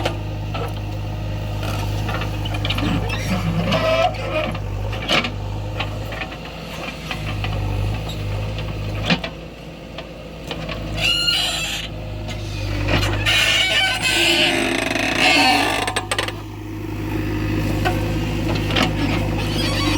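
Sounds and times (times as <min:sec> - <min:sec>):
diesel machinery engine running: 0:00.0 - 0:19.9
brief squeal: 0:11.0 - 0:11.9, 0:13.2 - 0:15.8.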